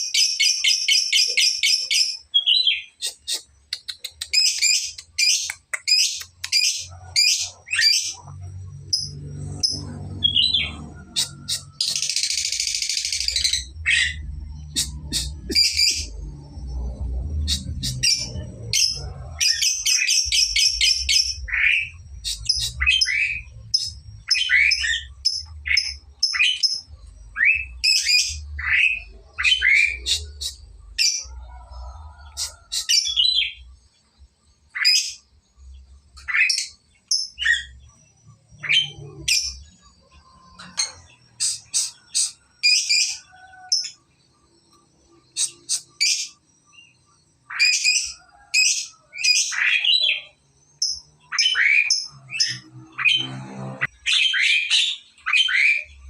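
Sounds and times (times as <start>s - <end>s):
lovebird chirping and trilling: 0.0s - 31.3s, 32.3s - 33.7s, 34.7s - 35.3s, 36.2s - 44.0s, 45.3s - 46.9s, 47.5s - 56.0s.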